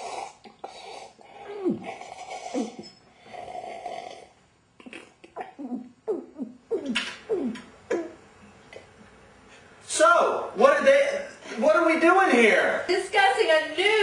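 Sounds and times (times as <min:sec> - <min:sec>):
person snoring: 0:00.0 - 0:04.3.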